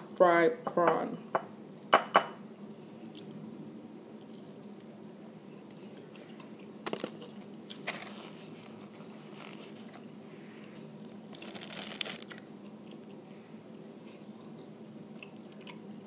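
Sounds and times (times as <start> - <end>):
quiet chewing: 3.0 - 3.4, 4.1 - 4.9, 12.2 - 15.9
crisp bites: 11.3 - 13.1.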